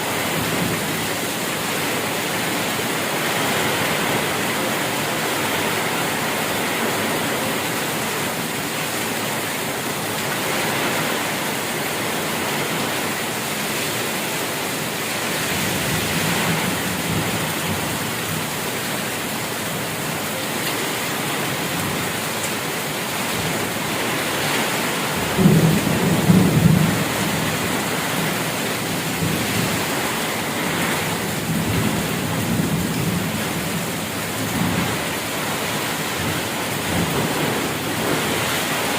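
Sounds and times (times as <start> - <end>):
heavy rain falling: 0.0 - 38.9
thunder rumbling: 24.5 - 38.9.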